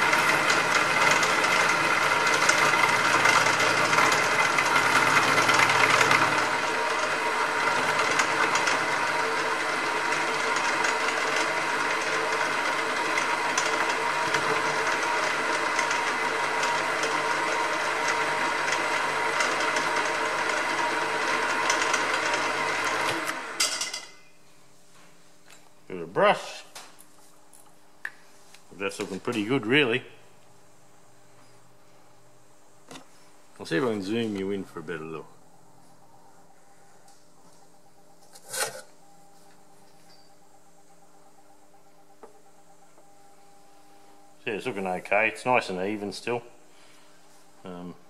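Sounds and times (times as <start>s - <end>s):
milling machine cutting metal: 0.0s - 23.6s.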